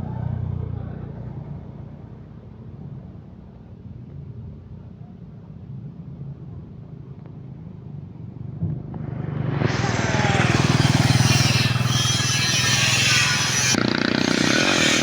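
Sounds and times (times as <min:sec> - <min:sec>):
vehicle engine revving: 0:08.7 - 0:15.0.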